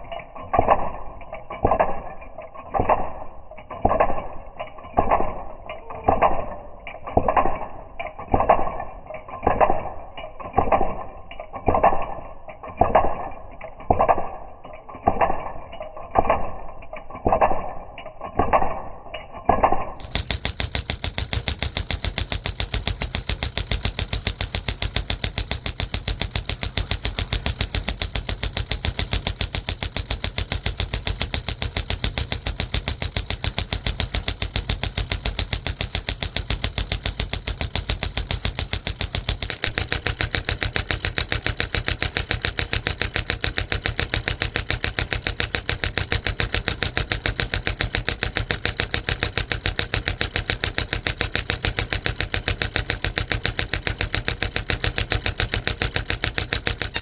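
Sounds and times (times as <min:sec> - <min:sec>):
solenoid engine clicking rattle: 0:00.0 - 0:57.0.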